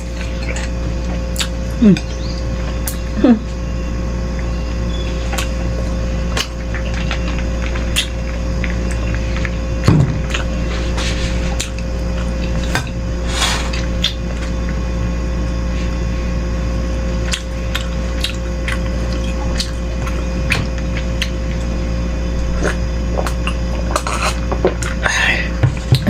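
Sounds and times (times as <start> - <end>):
chewing: 0.0 - 3.6, 4.3 - 14.8, 17.2 - 25.1
low hum: 0.0 - 26.0.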